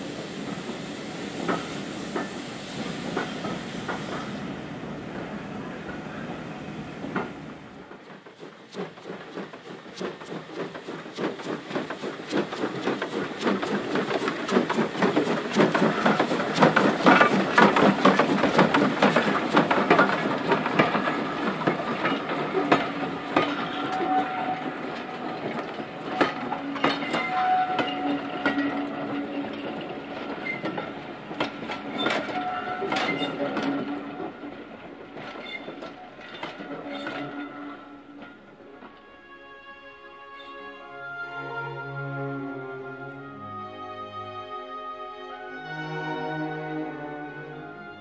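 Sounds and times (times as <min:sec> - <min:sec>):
train wheels clicking over rail joints: 0:00.1 - 0:04.4, 0:06.2 - 0:39.0.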